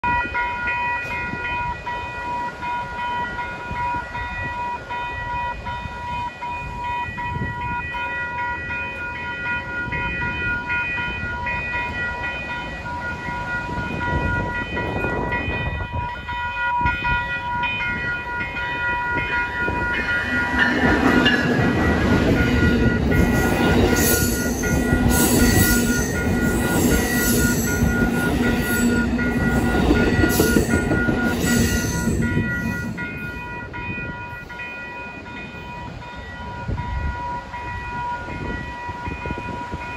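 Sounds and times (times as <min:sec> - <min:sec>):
passenger train passing: 0:00.0 - 0:39.9
railroad crossing signal tones: 0:00.0 - 0:39.9
train wheels squeaking and clattering: 0:17.7 - 0:34.4.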